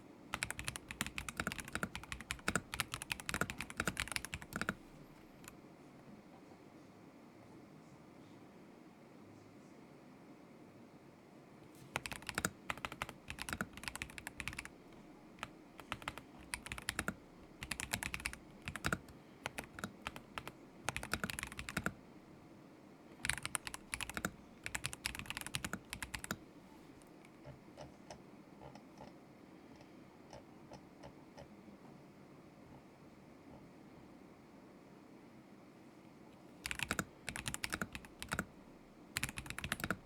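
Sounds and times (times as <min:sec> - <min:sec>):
mechanical keyboard typing: 0:00.3 - 0:05.6, 0:11.9 - 0:22.0, 0:23.2 - 0:26.4, 0:36.6 - 0:38.5, 0:39.2 - 0:40.0.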